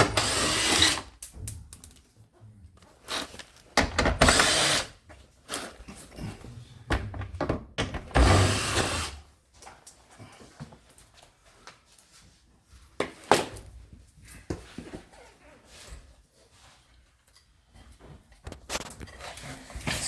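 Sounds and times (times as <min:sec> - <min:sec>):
power drill spinning: 0:00.2 - 0:01.0, 0:04.2 - 0:04.9
handling clicks and knocks: 0:01.2 - 0:02.1.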